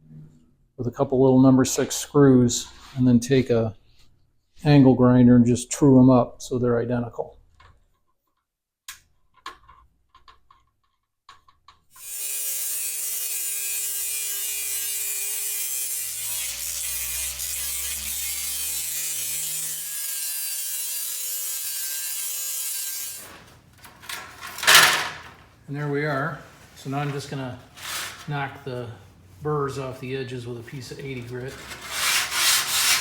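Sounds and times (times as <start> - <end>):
angle grinder grinding sheet metal: 12.0 - 25.5, 26.8 - 28.8, 30.8 - 33.0.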